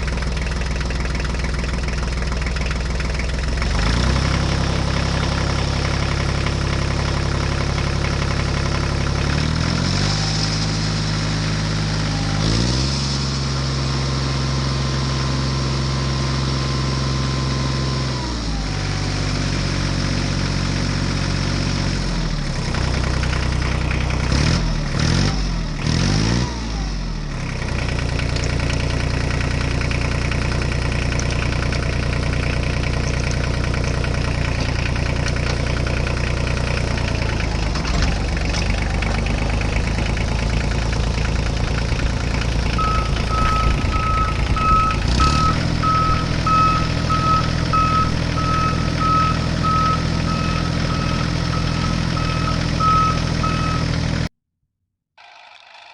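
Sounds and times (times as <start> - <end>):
heavy vehicle engine idling: 0.0 - 12.5, 28.6 - 54.0
reversing beeper: 42.2 - 54.0.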